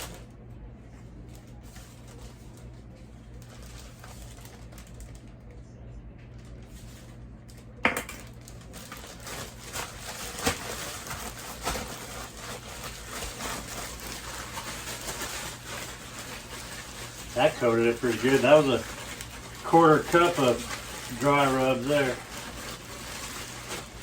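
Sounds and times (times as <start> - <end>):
rustling and clatter: 6.4 - 24.0.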